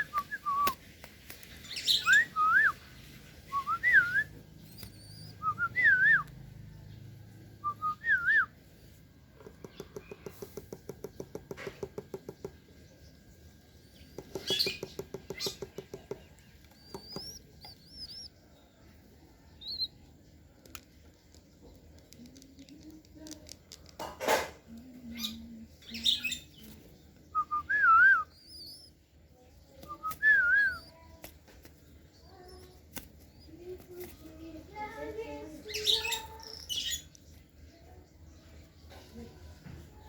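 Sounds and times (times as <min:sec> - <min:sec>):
faint high chirps: 0:01.6 - 0:20.8, 0:24.8 - 0:31.4.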